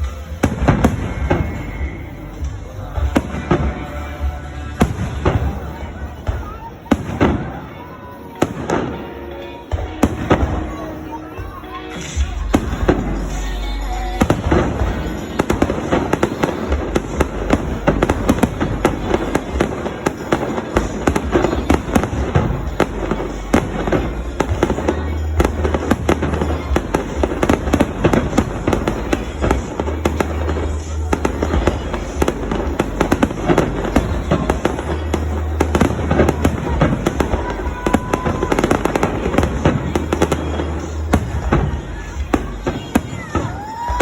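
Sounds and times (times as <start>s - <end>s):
deep fireworks booms: 0.0s - 44.0s
fireworks bangs and crackles: 0.0s - 44.0s.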